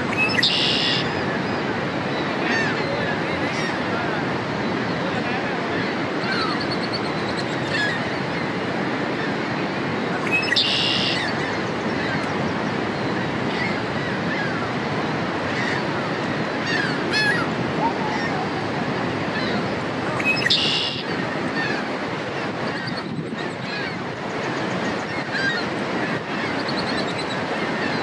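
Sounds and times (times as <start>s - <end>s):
bird buzzy trilled song: 0.1s - 1.6s, 10.2s - 11.6s, 20.2s - 21.1s.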